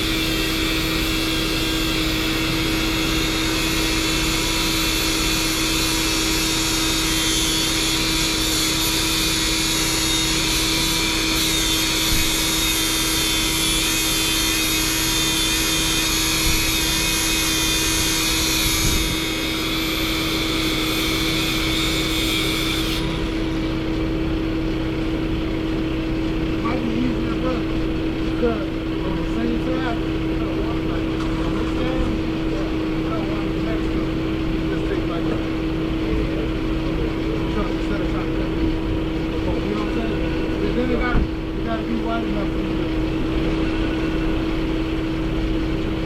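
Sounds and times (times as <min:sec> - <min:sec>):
truck engine running: 0:17.7 - 0:46.0.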